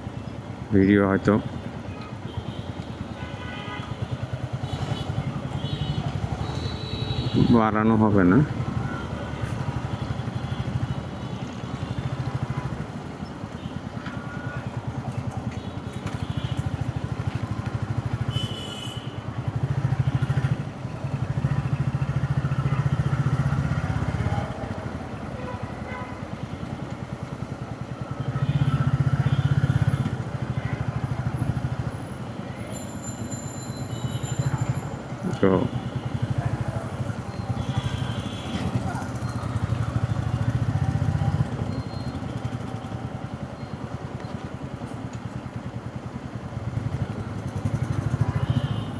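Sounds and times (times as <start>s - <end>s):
motorcycle engine running: 19.3s - 32.4s, 33.0s - 43.5s, 45.4s - 48.9s.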